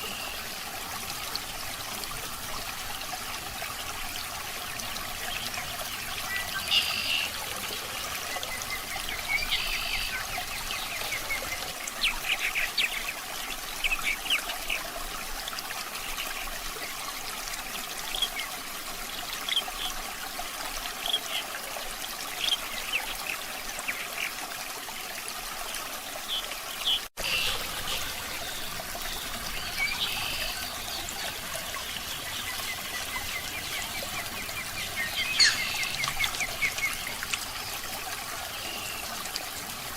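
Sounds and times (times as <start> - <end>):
water trickling: 0.0 - 39.9
bird chirps: 34.7 - 37.1.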